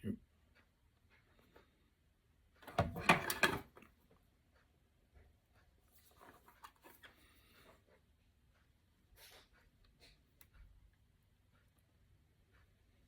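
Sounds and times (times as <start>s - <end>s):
tools clattering and rustling: 2.6s - 3.9s.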